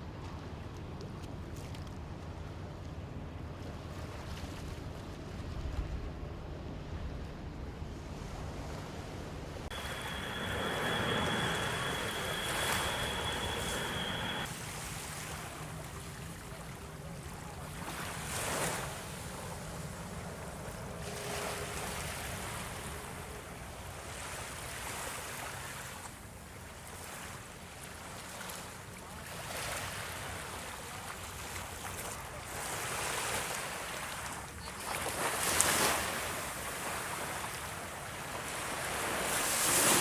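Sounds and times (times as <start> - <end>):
water noise: 8.4 - 25.0
steady high-pitched tone: 9.7 - 14.5.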